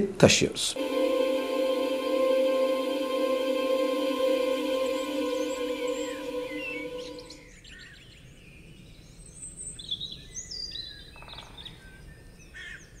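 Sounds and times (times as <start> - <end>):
music: 0.8 - 7.4.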